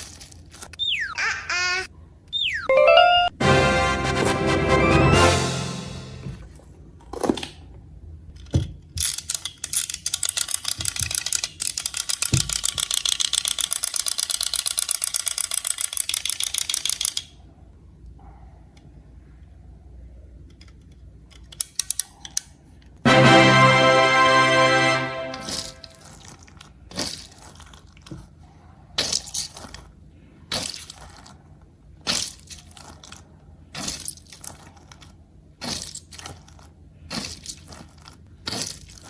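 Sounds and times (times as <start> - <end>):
ratchet-like clicks: 9.0 - 17.3.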